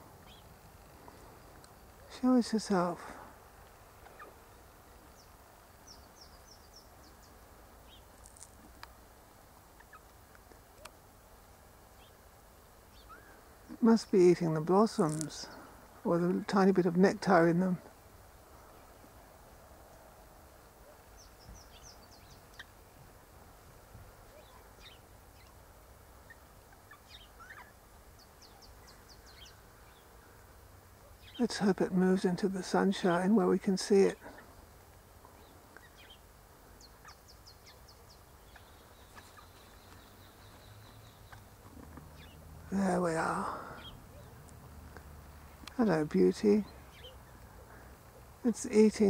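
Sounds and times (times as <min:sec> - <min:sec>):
faint high-pitched bird chirps: 0:24.3 - 0:25.6, 0:26.2 - 0:30.1, 0:36.8 - 0:41.5, 0:46.6 - 0:47.3.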